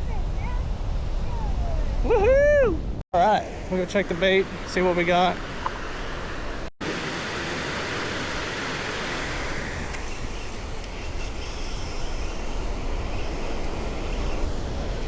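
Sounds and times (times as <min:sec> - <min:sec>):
wind rumbling on microphone: 0:00.0 - 0:06.7, 0:07.8 - 0:15.0
surf on beach: 0:03.2 - 0:15.0
wind rushing: 0:08.0 - 0:15.0.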